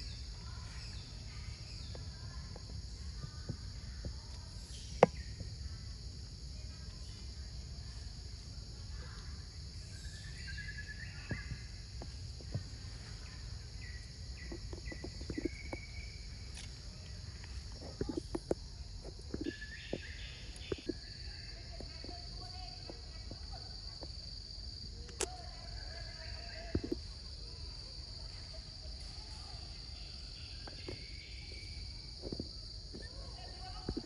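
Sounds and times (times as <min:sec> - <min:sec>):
bird chirps: 0:09.0 - 0:18.4, 0:19.0 - 0:23.0, 0:28.5 - 0:34.0.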